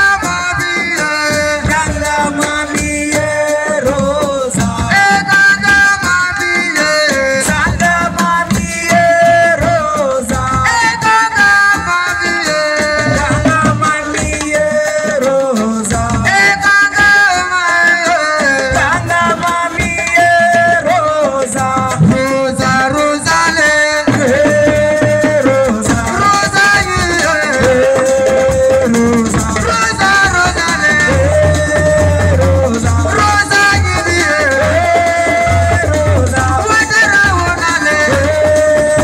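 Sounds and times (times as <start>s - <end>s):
hand drums: 0.0s - 39.0s
lead voice singing: 0.0s - 39.0s
shaker rattle: 0.0s - 39.0s.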